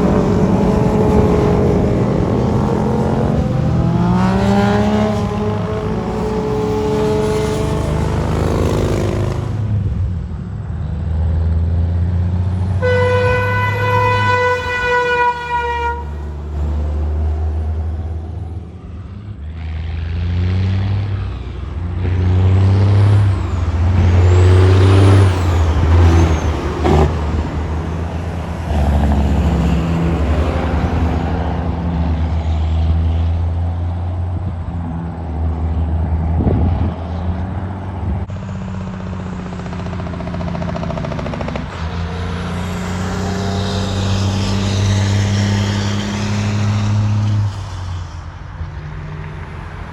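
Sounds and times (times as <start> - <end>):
truck horn: 0.0 - 9.6, 12.6 - 17.2, 23.8 - 31.6
diesel trucks driving past: 0.0 - 49.9.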